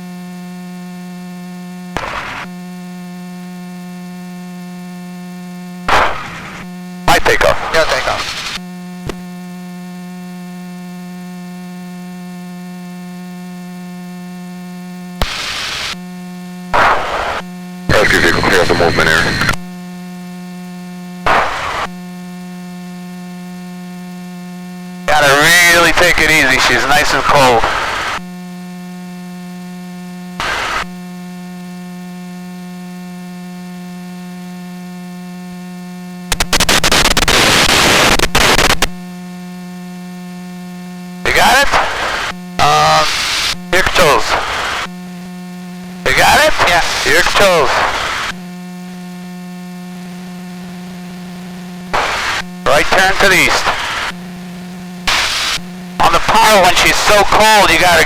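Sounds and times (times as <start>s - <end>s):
electrical hum: 0.0s - 58.0s
loud static hiss: 1.8s - 2.8s, 5.3s - 9.2s, 14.8s - 19.9s, 20.6s - 28.4s, 30.2s - 31.0s, 36.0s - 39.6s, 40.3s - 58.0s
burst of noise: 2.0s - 2.5s, 5.9s - 8.6s, 15.2s - 16.0s, 16.7s - 19.6s, 21.3s - 22.0s, 36.3s - 38.9s, 46.1s - 48.4s, 51.9s - 57.5s
headset intercom hum: 5.9s - 9.2s, 16.8s - 19.7s, 21.3s - 22.0s, 25.0s - 28.2s, 30.4s - 30.9s, 41.2s - 58.0s.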